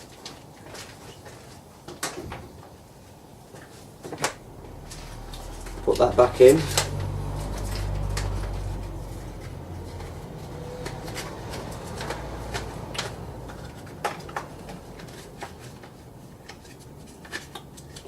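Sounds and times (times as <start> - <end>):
plastic clicks and rustles: 3.6 - 18.0.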